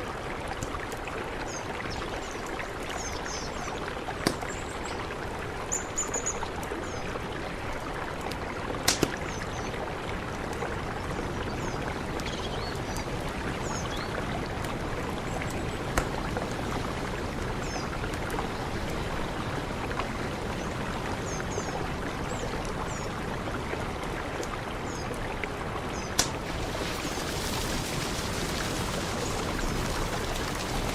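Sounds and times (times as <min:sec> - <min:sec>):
mountain river rushing: 0:00.0 - 0:30.9.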